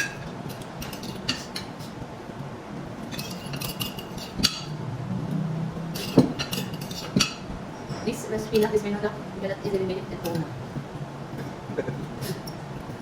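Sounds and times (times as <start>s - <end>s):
cutlery clinking on plates: 0.0s - 1.9s, 3.1s - 4.8s, 6.0s - 8.8s.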